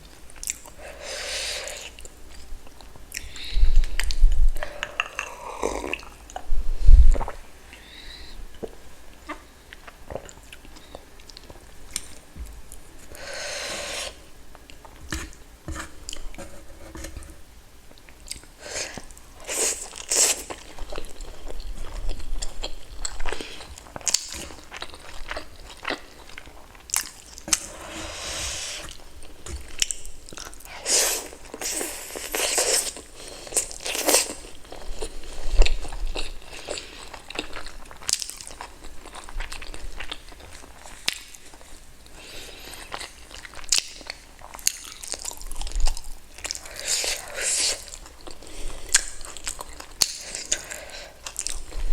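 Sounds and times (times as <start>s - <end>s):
close eating and chewing: 0.1s - 51.9s.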